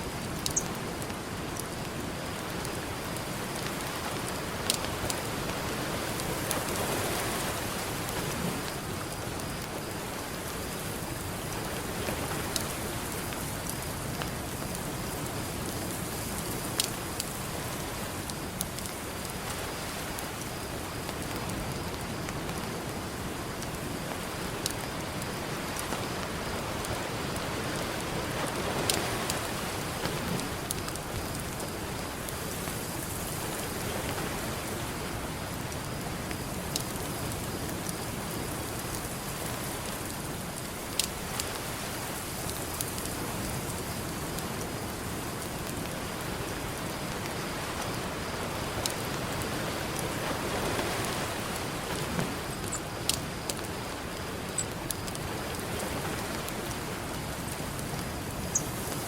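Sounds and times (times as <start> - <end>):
campfire crackling: 0.0 - 59.0
ocean surf: 45.7 - 59.0.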